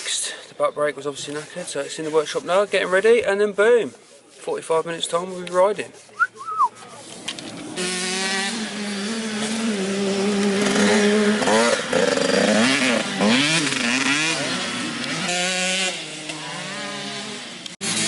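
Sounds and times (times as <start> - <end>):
dirt bike engine revving: 7.4 - 18.0.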